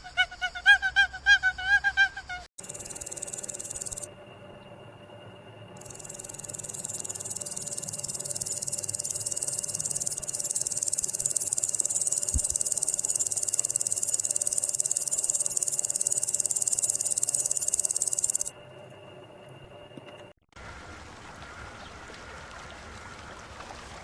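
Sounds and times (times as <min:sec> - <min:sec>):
insect trilling: 0:00.0 - 0:04.1, 0:05.8 - 0:18.5.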